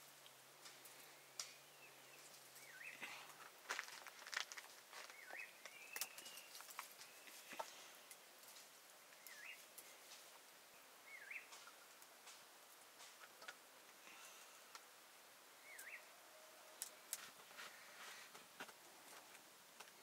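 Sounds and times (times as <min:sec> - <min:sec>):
faint clicks: 0:00.2 - 0:01.6
small bird chirping: 0:01.4 - 0:03.0, 0:05.0 - 0:07.7, 0:09.1 - 0:09.8, 0:10.7 - 0:11.9, 0:15.6 - 0:16.1.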